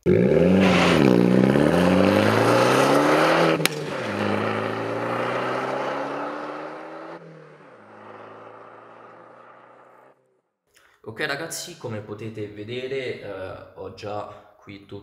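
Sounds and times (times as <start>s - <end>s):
car engine accelerating: 0.0s - 10.2s.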